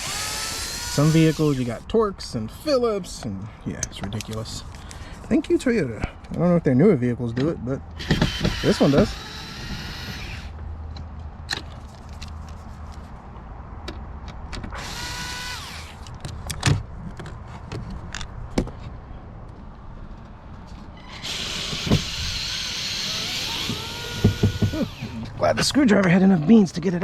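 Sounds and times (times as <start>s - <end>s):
cordless screwdriver whirring: 0.0s - 1.7s, 8.0s - 10.5s, 14.8s - 16.1s, 21.1s - 25.2s.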